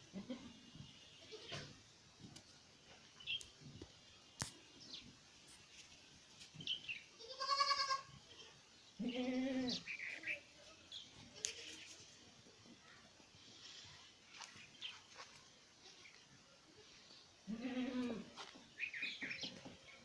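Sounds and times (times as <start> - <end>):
goat kid bleating: 7.2 - 10.3, 17.4 - 18.4.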